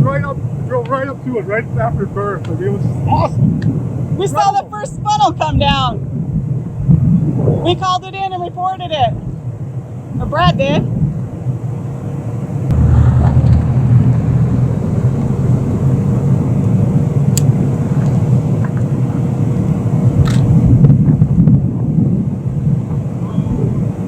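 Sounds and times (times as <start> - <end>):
car rumbling low: 12.5 - 21.3.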